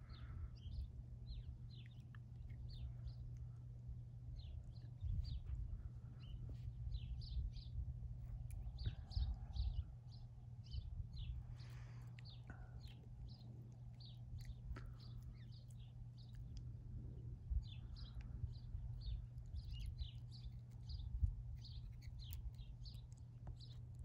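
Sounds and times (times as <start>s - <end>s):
low steady hum: 0.0s - 24.0s
small birds chirping: 0.0s - 24.0s.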